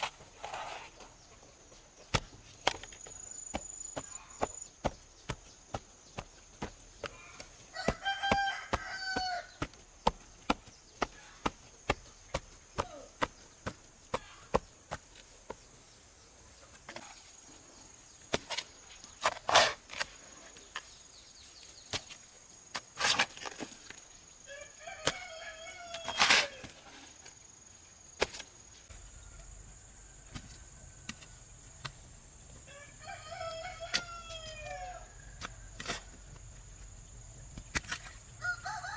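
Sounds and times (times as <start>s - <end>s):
rooster crowing: 7.7s - 9.5s, 24.5s - 26.6s, 32.7s - 35.8s, 38.4s - 38.9s.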